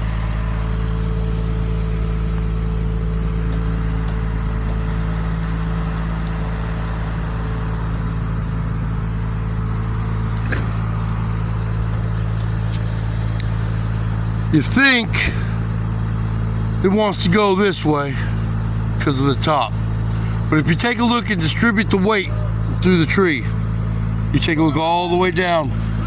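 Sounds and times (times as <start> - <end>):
engine idling: 0.0 - 26.0
brief sharp sound: 2.8 - 11.8.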